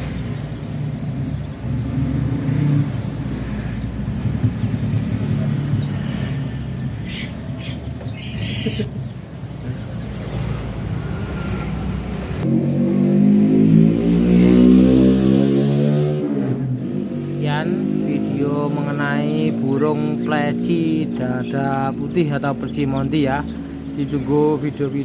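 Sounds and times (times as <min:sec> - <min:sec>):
white-eyes chirping: 0:00.0 - 0:14.2.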